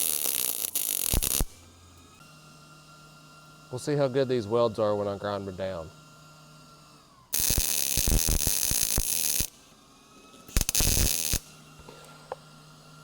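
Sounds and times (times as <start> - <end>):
welder arc crackling and buzzing: 0.0 - 1.7, 7.3 - 9.7, 10.5 - 11.6.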